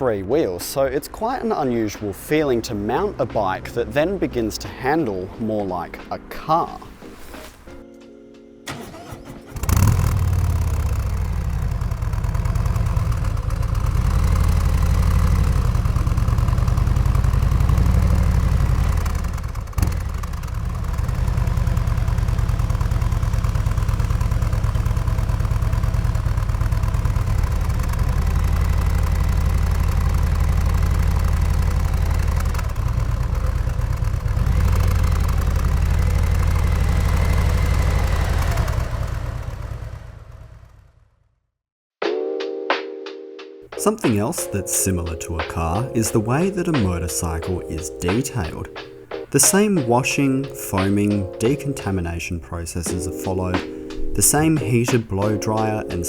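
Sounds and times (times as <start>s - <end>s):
motorcycle engine starting: 8.7s - 41.3s, 43.8s - 56.0s
motorcycle engine idling: 9.5s - 41.2s, 45.0s - 56.0s.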